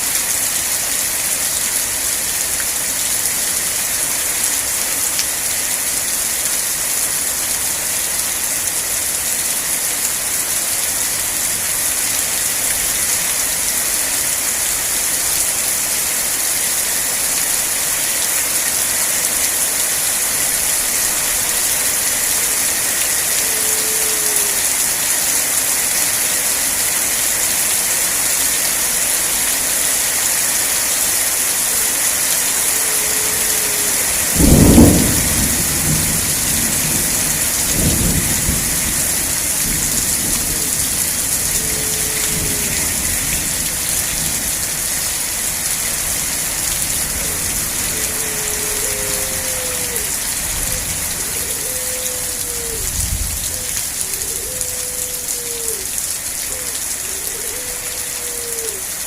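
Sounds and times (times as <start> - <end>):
steady rain: 0.0 - 59.0
thunder rumbling: 34.3 - 43.2.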